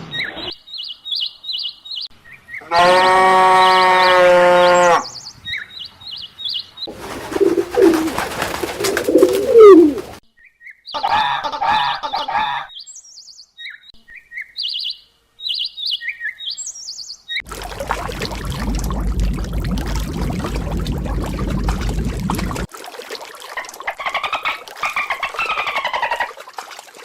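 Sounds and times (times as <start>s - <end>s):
small birds chirping: 0.1s - 2.6s, 5.1s - 11.0s, 12.7s - 17.5s
low gliding animal calls: 7.2s - 10.2s
long steady animal call: 8.8s - 10.2s
wavering animal call: 8.8s - 10.2s.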